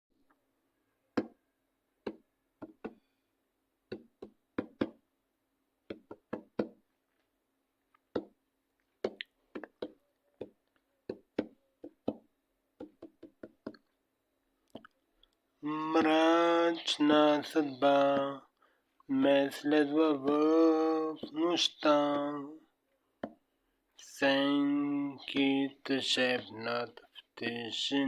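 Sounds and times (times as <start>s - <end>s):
faint steady hum: 13.7s - 28.0s.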